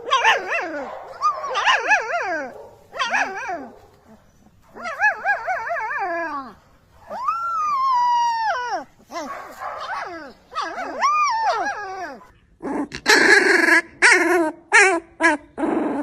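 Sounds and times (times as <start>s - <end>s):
dog whining and howling: 0.0s - 12.4s.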